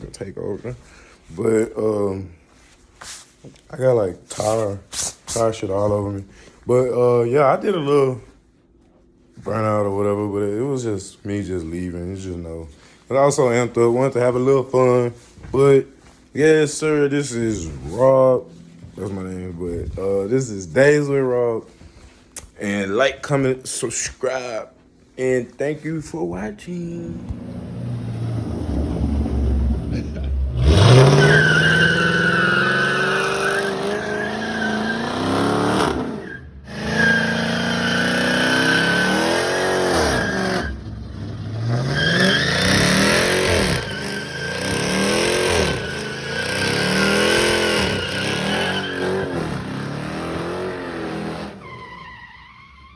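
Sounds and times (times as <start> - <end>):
car engine revving: 17.2 - 20.3, 27.0 - 51.7
tires squealing: 17.2 - 20.3, 27.0 - 52.9.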